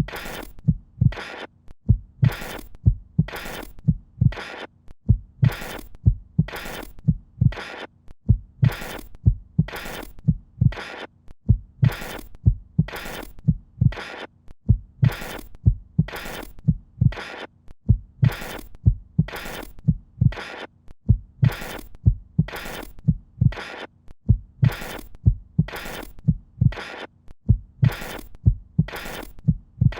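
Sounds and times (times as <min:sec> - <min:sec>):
low heartbeat thumps: 0:01.9 - 0:04.4, 0:05.1 - 0:07.6, 0:08.3 - 0:10.8, 0:11.5 - 0:14.0, 0:14.7 - 0:17.2, 0:17.9 - 0:20.4, 0:21.1 - 0:23.6, 0:24.3 - 0:26.8, 0:27.5 - 0:29.9.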